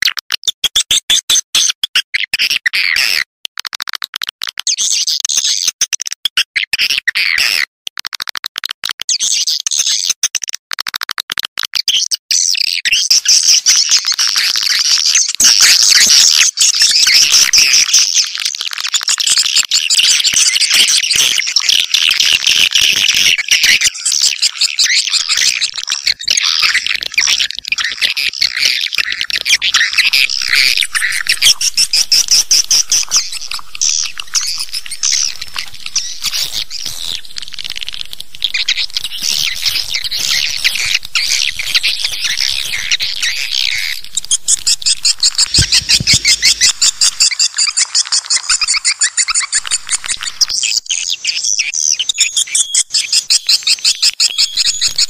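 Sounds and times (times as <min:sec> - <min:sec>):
swiftlets twittering: 0:25.2 - 0:50.6.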